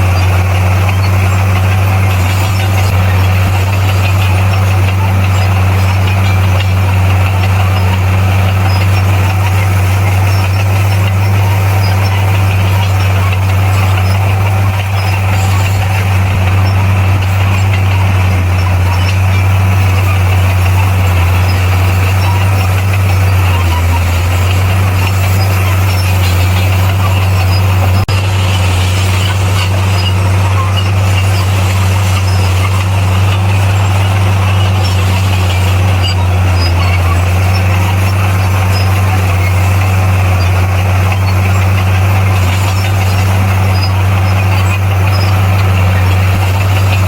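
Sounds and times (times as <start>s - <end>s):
heavy diesel engine humming: 0.0s - 47.0s.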